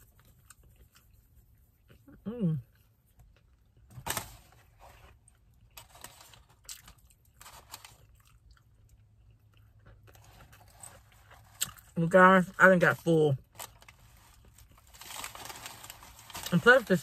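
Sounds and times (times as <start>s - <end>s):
chewing sandwich: 0.0s - 12.0s.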